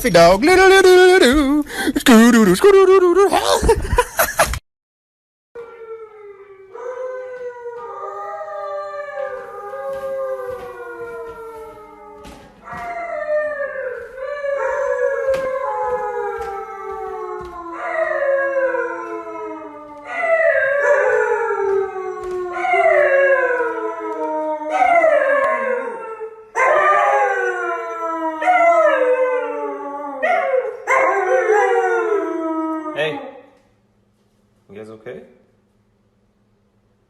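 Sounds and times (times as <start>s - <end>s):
dog howling: 5.6s - 33.4s.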